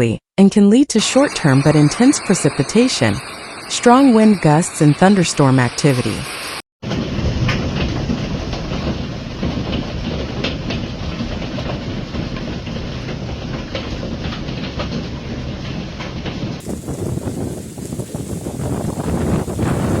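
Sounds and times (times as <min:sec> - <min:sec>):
heavy rain and wind: 0:01.0 - 0:20.0
hail striking hard surfaces: 0:06.9 - 0:20.0.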